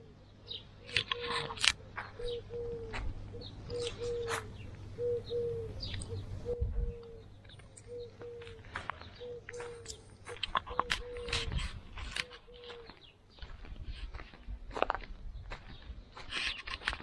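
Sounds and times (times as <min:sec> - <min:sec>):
bird repeating low call: 0:00.0 - 0:11.6
higher bird chirps: 0:00.0 - 0:11.6.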